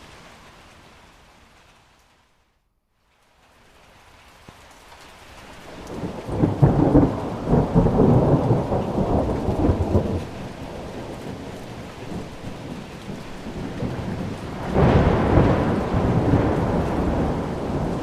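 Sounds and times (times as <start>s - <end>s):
steady rain: 0.0s - 18.0s
thunder rolling: 5.8s - 18.0s.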